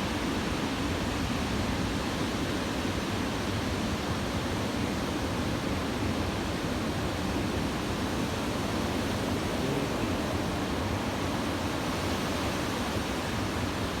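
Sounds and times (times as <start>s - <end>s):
ocean waves breaking: 7.7s - 14.0s.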